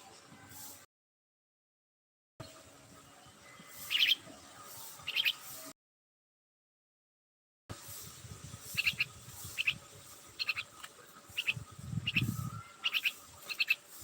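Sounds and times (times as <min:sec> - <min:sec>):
small bird chirping: 0:03.4 - 0:05.7, 0:08.6 - 0:14.0.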